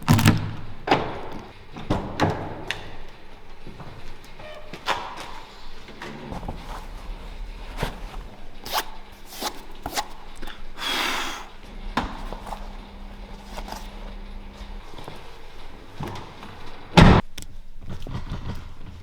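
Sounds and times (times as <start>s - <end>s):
low hum: 11.6s - 17.2s.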